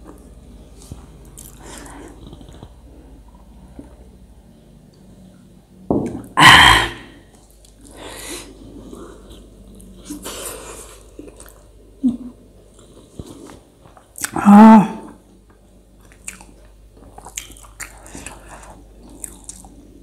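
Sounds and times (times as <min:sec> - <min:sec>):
person chewing and eating: 0:00.0 - 0:04.1, 0:07.3 - 0:11.9, 0:12.6 - 0:14.4, 0:15.0 - 0:20.0.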